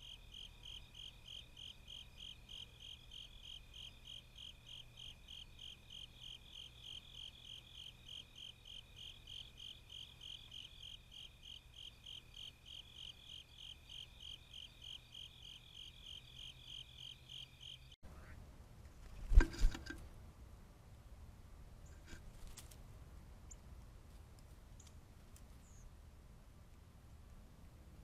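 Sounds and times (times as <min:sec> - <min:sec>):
insect chirping: 0:00.0 - 0:18.0.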